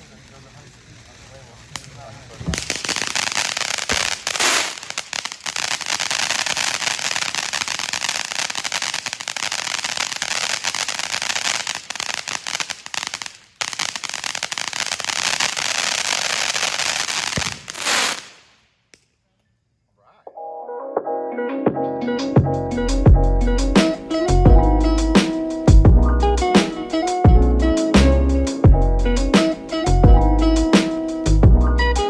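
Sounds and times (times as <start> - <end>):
firework fountain hissing and crackling: 0.0 - 18.7, 30.8 - 31.3.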